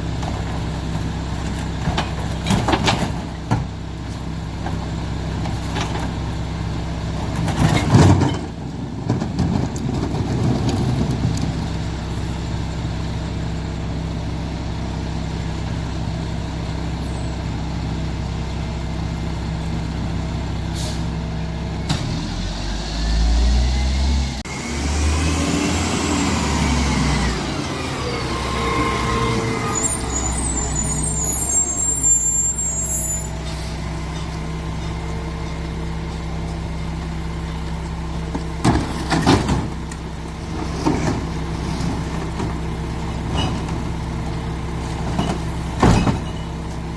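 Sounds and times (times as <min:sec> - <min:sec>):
garbage truck diesel engine: 0:00.0 - 0:46.9
air brake hiss: 0:20.7 - 0:21.1
short high squeals: 0:28.1 - 0:33.8.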